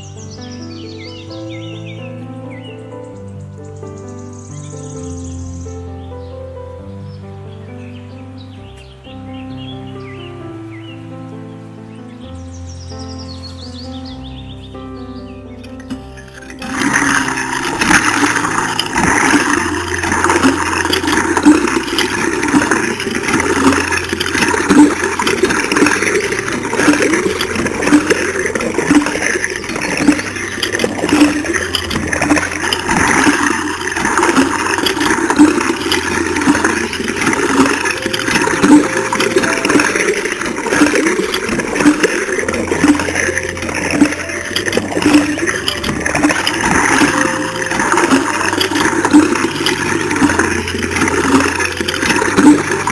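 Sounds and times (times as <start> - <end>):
water pump running: 15.6 - 52.9
water rushing and splashing: 15.8 - 52.9.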